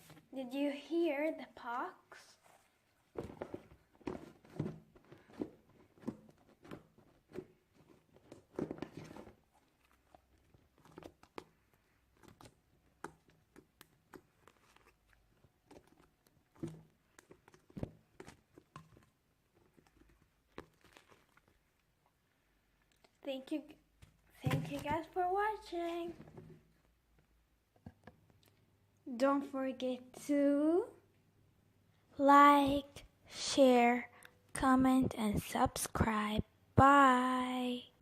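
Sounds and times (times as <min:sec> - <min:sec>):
slime squelching and popping: 0:08.2 - 0:22.0.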